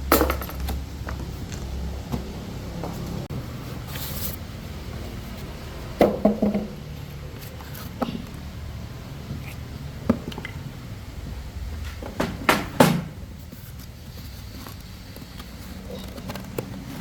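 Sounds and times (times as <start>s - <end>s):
sharp knocks and clanks: 0.0s - 3.1s, 6.0s - 6.9s, 11.7s - 13.3s.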